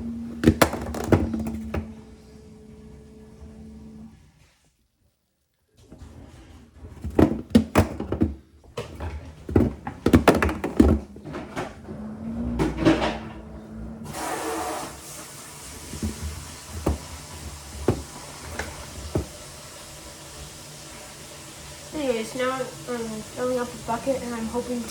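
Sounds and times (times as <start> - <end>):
water running into bucket: 0.0 - 2.2, 6.7 - 24.9
plastic bucket knocks and clunks: 0.3 - 2.0, 6.8 - 11.9, 15.4 - 20.0.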